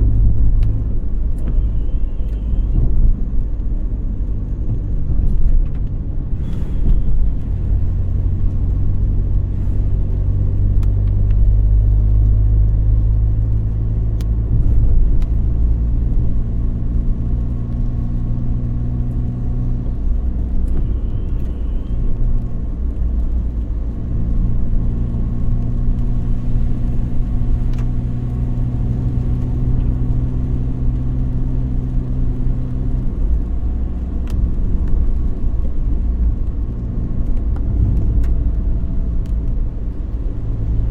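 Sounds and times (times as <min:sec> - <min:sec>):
car engine hum: 0:00.0 - 0:40.9
road noise: 0:00.0 - 0:40.9.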